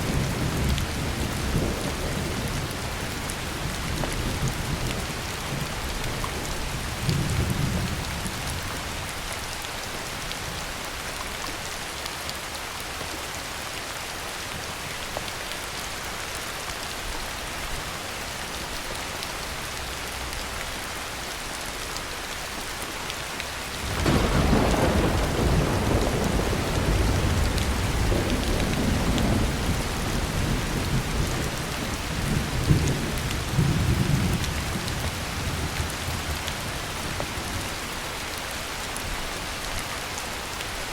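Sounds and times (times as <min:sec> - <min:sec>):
heavy rain falling: 0:00.0 - 0:40.9
thunder rumbling: 0:23.8 - 0:36.4.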